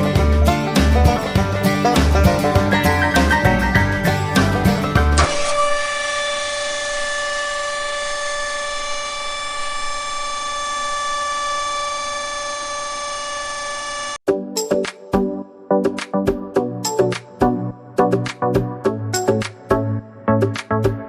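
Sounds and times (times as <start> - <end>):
small electric motor whining: 5.2 - 14.2.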